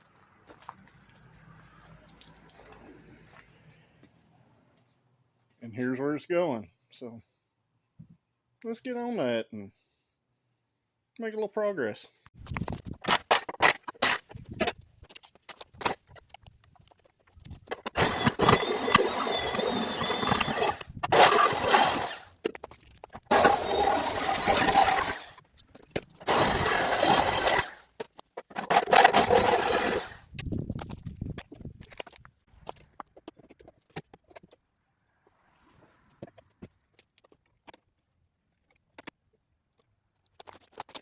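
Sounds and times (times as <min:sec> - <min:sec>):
reciprocating saw cutting steel: 0:17.9 - 0:22.3, 0:23.3 - 0:25.4, 0:26.2 - 0:27.9.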